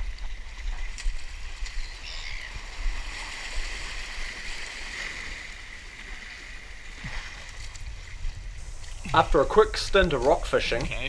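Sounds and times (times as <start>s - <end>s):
water rushing and sloshing: 0.0s - 11.0s
wind on microphone: 6.9s - 11.0s.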